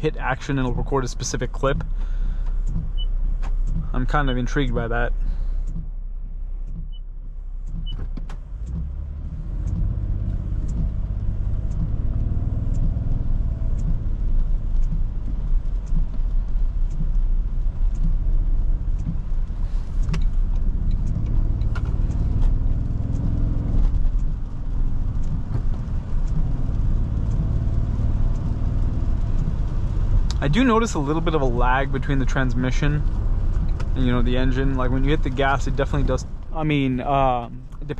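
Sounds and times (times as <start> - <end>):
car engine note rising and falling: 0.0 - 37.9
road and tyre rumble: 0.0 - 37.9
faint ticks: 7.6 - 31.4, 33.0 - 36.5.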